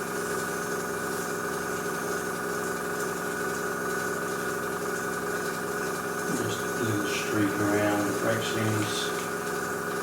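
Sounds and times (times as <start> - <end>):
airbrush compressor humming: 5.1 - 10.0.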